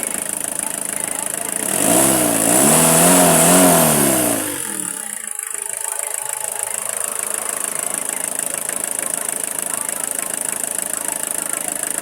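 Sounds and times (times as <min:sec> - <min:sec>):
diesel engine revving and idling: 0:00.0 - 0:05.3.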